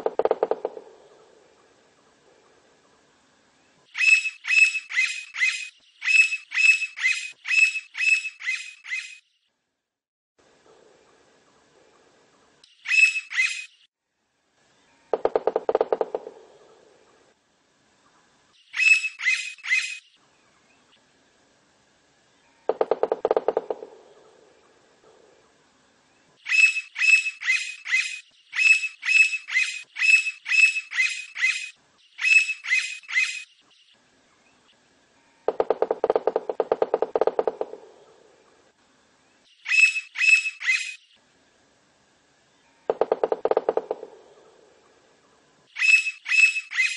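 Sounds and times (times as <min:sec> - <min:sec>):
woodpecker ringing calls: 0:04.0 - 0:09.2, 0:12.8 - 0:13.7, 0:18.7 - 0:20.1, 0:26.4 - 0:33.6, 0:35.5 - 0:38.2, 0:39.6 - 0:41.0, 0:42.7 - 0:45.0, 0:45.8 - 0:46.9.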